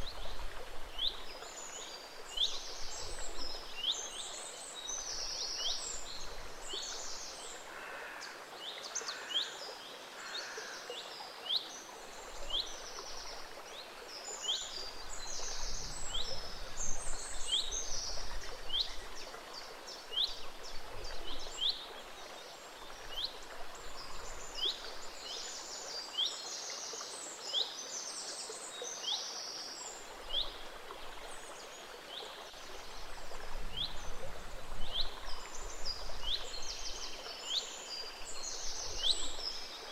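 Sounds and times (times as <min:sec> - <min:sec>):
gentle stream running: 0:00.0 - 0:39.9.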